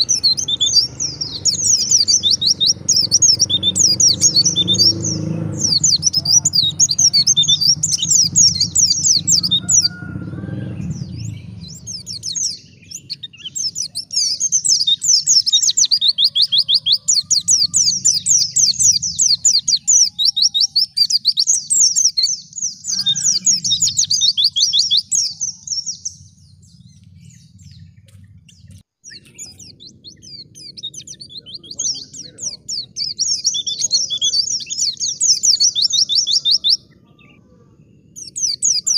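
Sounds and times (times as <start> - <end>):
bird high chattering song: 0.0 - 38.9.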